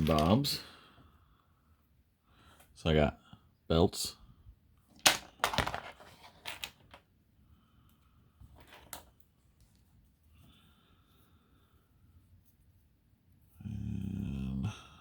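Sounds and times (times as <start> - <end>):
plastic parts clicking and rattling: 0.0 - 0.6, 4.9 - 7.0.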